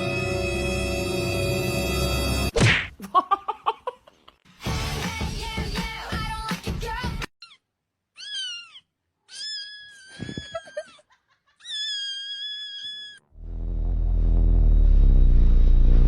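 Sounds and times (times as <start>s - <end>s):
cat meowing: 8.2s - 10.8s, 11.6s - 13.2s.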